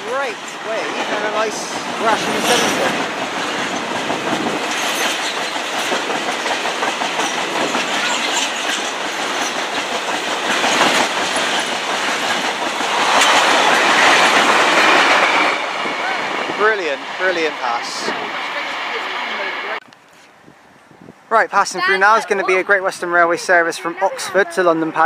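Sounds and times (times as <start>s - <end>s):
train wheels rushing on rails: 0.0s - 19.8s.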